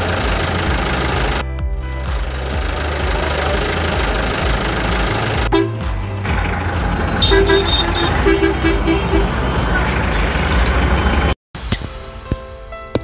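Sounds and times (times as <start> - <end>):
music: 0.0 - 9.8, 11.6 - 13.0
truck engine rumbling: 0.0 - 11.4
truck horn short beeps: 5.5 - 5.8, 7.2 - 9.4.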